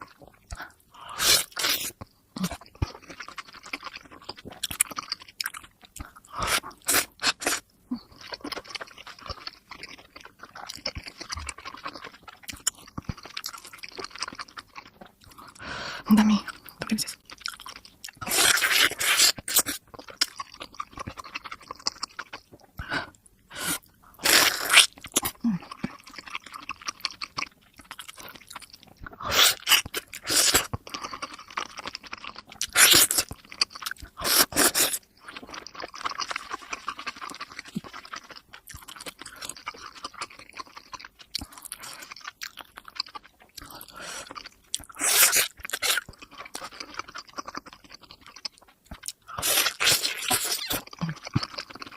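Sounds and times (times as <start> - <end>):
wet chewing clicks: 1.8 - 15.6, 24.7 - 51.9.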